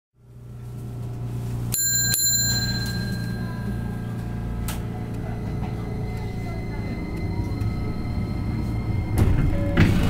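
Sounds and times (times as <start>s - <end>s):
steady low hum: 0.2s - 10.0s
streetcar bell ringing: 1.5s - 9.1s.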